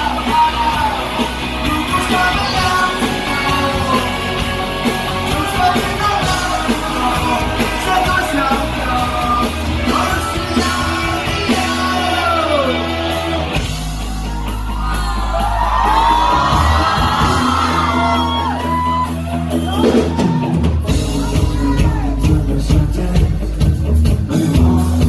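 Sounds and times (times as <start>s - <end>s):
person singing and shouting: 0.0s - 13.6s, 19.9s - 23.5s
rock band playing live: 0.0s - 25.0s.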